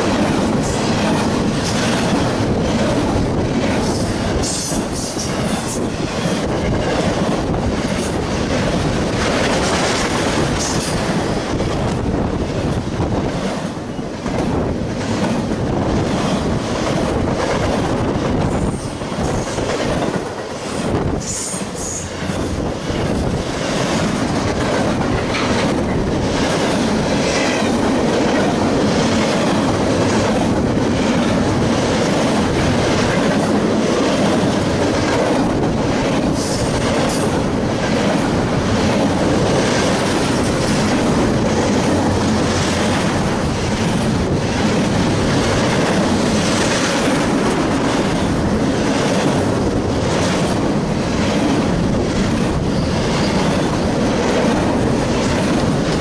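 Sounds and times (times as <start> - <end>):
freight train passing: 0.0 - 56.0
wheels clicking over rail joints: 21.4 - 56.0.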